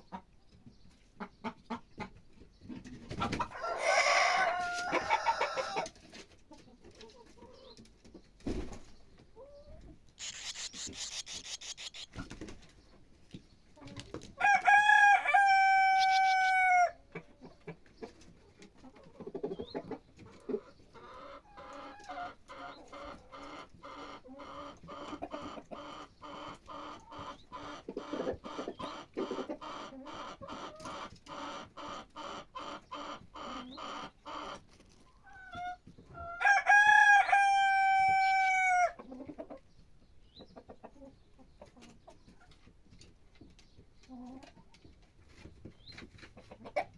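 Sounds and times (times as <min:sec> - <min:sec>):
rooster crowing: 0:03.6 - 0:05.9, 0:14.4 - 0:17.0, 0:36.4 - 0:39.0
fast repeated bird calls: 0:10.2 - 0:12.3.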